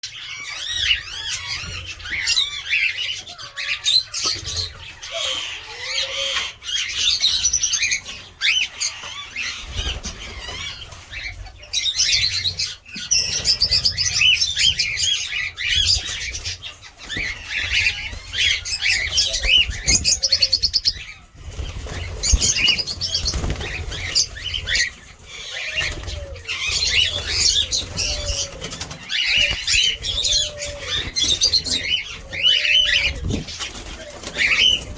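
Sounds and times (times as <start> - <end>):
cockatiels chirping and calling: 0.0 - 34.9
wings flapping: 15.8 - 34.9.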